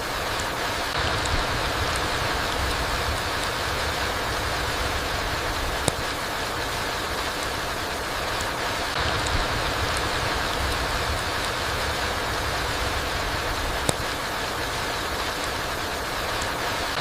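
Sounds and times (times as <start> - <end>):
steady rain in forest: 0.0 - 17.0
water drips ticking: 0.3 - 17.0
low rumble: 1.0 - 6.8.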